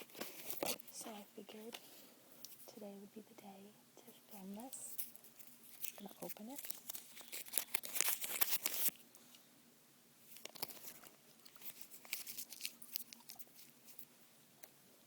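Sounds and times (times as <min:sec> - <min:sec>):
gum wrapper crinkling: 0:04.9 - 0:09.0, 0:10.3 - 0:14.1.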